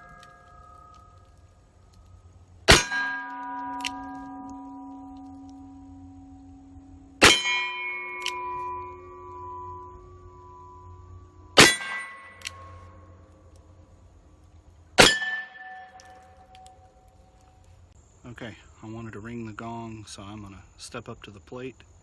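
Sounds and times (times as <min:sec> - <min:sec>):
steel target plates ringing: 0:00.0 - 0:13.5, 0:15.0 - 0:17.1.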